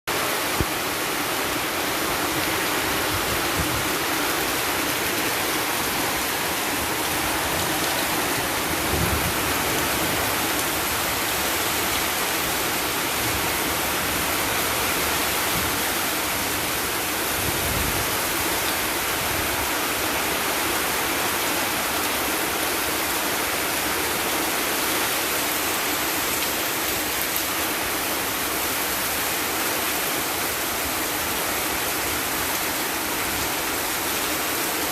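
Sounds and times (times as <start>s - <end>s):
heavy rain pouring: 0.1s - 34.9s
wind buffeting microphone: 2.7s - 11.1s, 17.2s - 18.4s.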